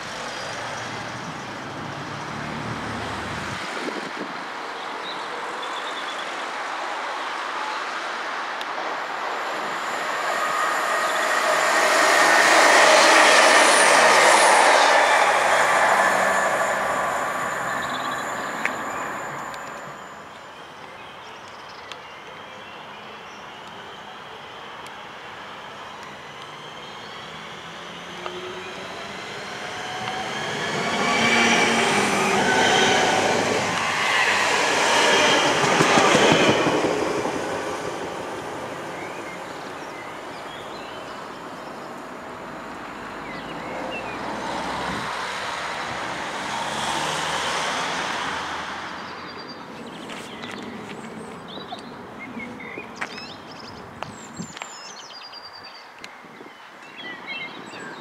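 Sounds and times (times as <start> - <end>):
train wheels rumbling on rails: 8.7 - 20.5, 27.8 - 39.8
electric train motors whining: 9.2 - 20.4
birds chirping: 9.3 - 22.2.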